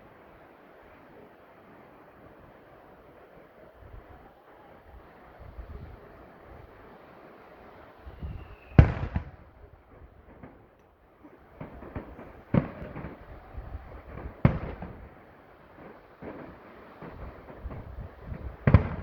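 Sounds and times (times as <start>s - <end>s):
fireworks bangs: 7.9s - 19.0s
fireworks crackling pops: 8.0s - 19.0s.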